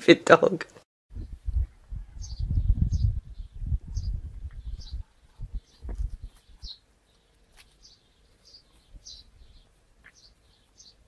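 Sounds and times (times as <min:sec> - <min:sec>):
small bird chirping: 0:01.2 - 0:11.0
rustling: 0:05.7 - 0:10.8.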